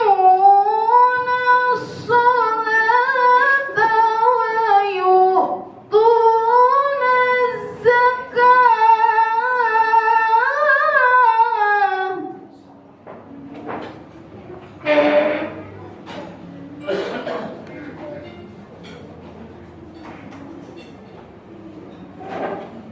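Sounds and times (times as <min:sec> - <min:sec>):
woman reciting melodically: 0:00.0 - 0:12.6.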